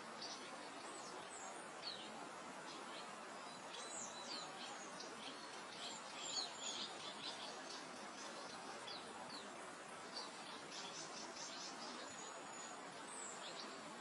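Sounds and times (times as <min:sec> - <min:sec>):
songbirds chirping: 0:00.0 - 0:14.0
wind through grass: 0:00.0 - 0:14.0.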